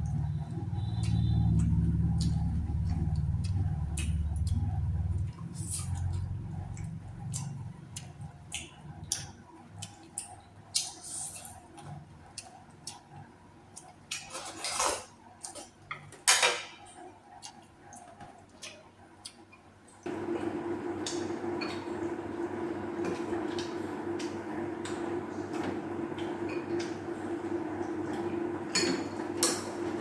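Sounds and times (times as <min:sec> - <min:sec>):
low hum: 0:00.0 - 0:09.0
chewing: 0:00.8 - 0:15.8, 0:17.3 - 0:20.0.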